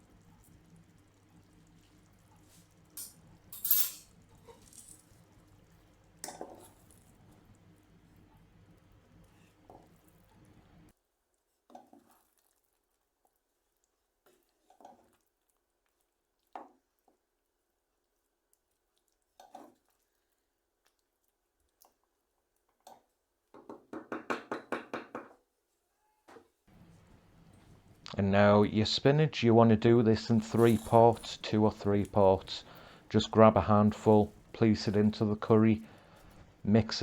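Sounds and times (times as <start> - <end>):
stirring a pan of curry: 4.1 - 23.5.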